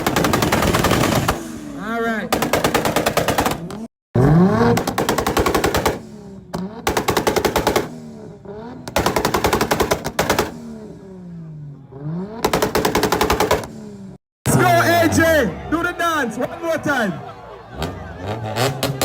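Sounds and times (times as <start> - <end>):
car engine revving against limiter: 3.7 - 14.2, 17.6 - 19.0.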